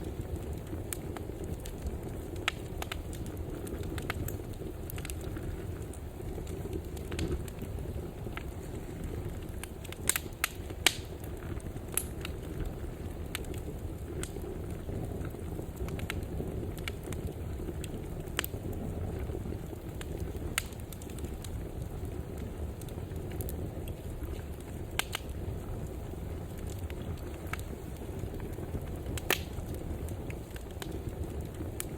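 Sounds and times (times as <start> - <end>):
fire crackles and pops: 0.0 - 31.9
fire low rumble: 0.0 - 31.9.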